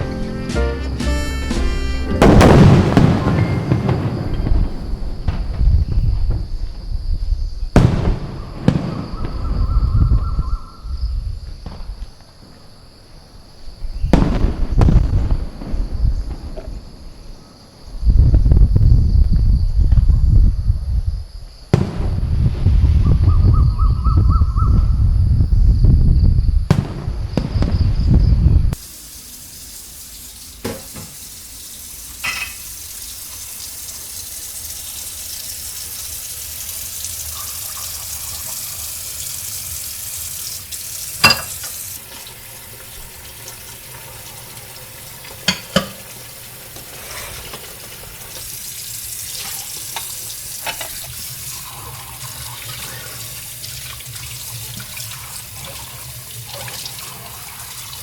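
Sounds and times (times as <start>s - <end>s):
steady hiss: 0.0s - 6.7s, 28.8s - 58.0s
rumble of fireworks bursts: 0.0s - 10.2s, 13.8s - 19.2s, 21.7s - 23.7s, 24.8s - 29.3s.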